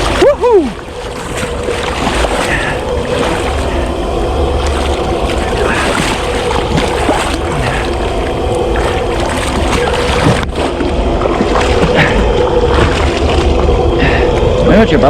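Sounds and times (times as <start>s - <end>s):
boat engine running: 0.0s - 15.0s
water noise around hull: 0.0s - 15.0s
wind buffeting microphone: 0.0s - 15.0s.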